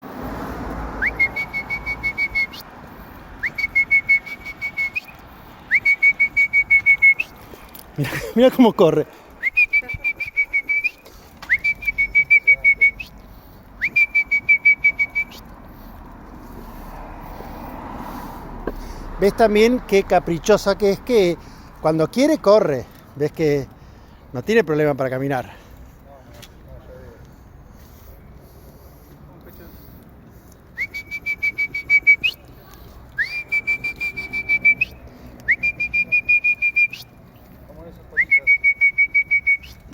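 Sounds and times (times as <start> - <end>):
high fluttering whistle blasts: 1.0 - 2.6, 3.4 - 7.3, 30.8 - 32.4, 33.2 - 37.1
person whistling high warbling note: 33.2 - 37.0.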